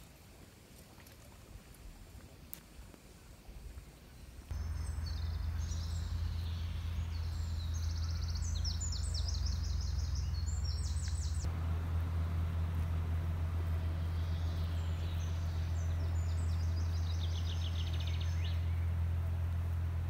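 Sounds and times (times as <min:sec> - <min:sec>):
steady low rumble: 0:04.5 - 0:20.0.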